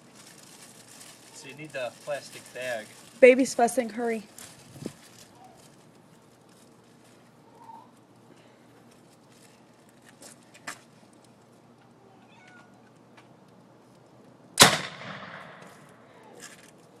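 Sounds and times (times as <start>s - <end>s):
potato cannon bang: 14.6s - 15.7s.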